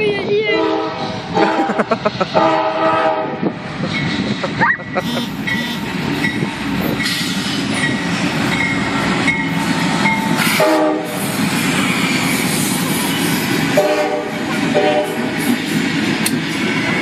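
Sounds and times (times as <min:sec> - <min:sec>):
freight train cars rumbling: 0:00.0 - 0:17.0
train air horn blast: 0:00.6 - 0:01.6, 0:02.4 - 0:03.4, 0:05.0 - 0:06.0, 0:10.4 - 0:11.2, 0:13.8 - 0:15.3.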